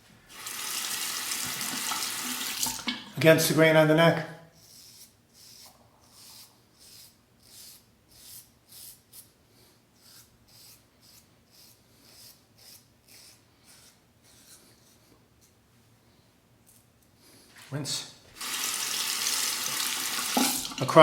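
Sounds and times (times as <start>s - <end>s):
razor scraping stubble: 10.0s - 15.6s.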